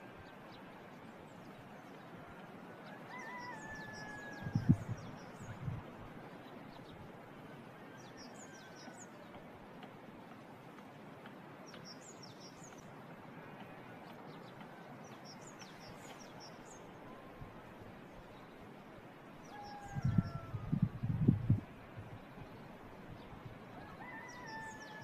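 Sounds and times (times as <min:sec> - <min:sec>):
countryside ambience hiss: 0:00.0 - 0:25.0
small songbirds chirping: 0:11.6 - 0:17.2.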